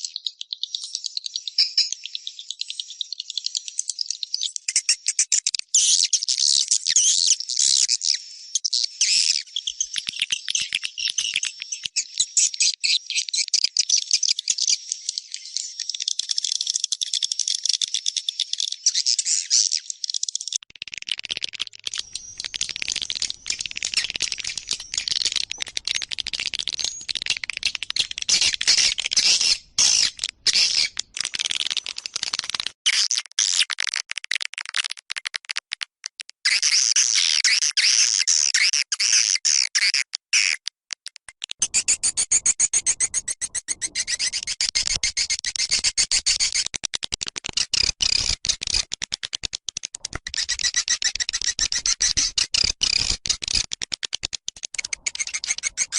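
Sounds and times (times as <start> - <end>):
swiftlets twittering: 54.8 - 55.9.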